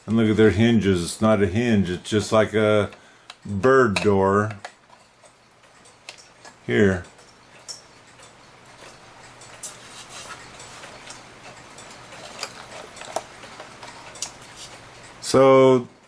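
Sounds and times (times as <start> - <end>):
faint rustling: 9.6 - 11.3.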